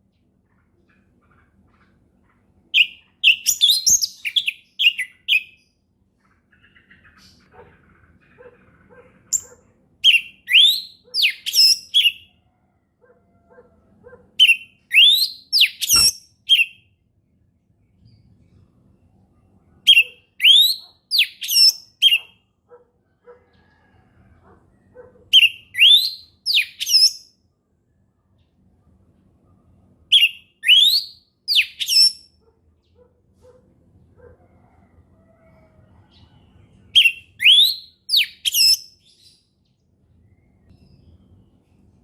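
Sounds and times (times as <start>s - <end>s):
thrush singing whistles: 10.1s - 11.9s, 14.4s - 16.8s, 25.4s - 27.2s, 30.1s - 32.2s, 37.0s - 38.9s.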